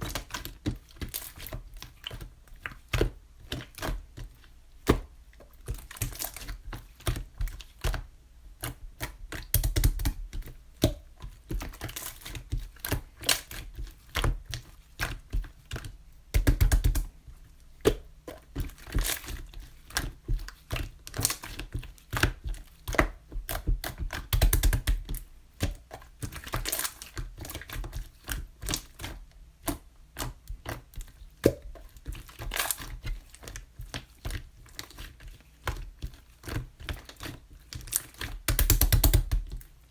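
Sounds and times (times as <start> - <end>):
slime clicking and popping: 22.9 - 25.1, 37.9 - 39.5.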